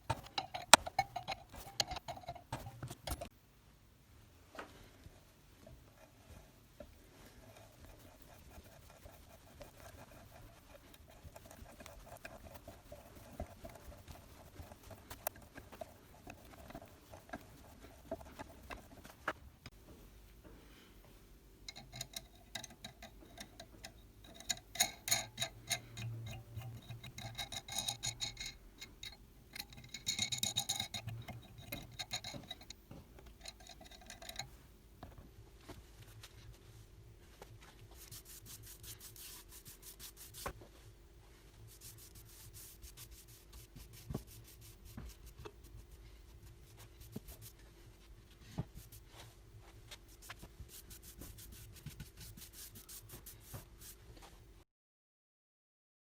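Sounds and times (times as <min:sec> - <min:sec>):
faint steady hum: 0:00.0 - 0:54.6
rubbing strokes on a surface: 0:05.9 - 0:19.4, 0:36.0 - 0:54.4.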